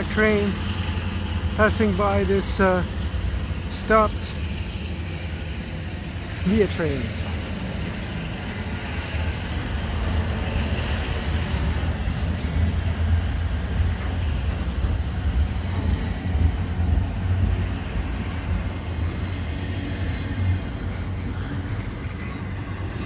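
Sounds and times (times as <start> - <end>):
freight train wheels on rails: 0.0 - 23.0.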